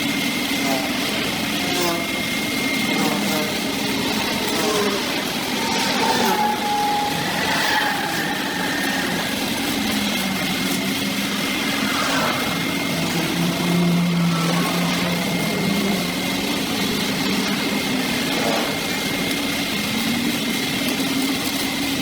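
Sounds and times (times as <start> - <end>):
brush cutter engine running: 0.0 - 22.0.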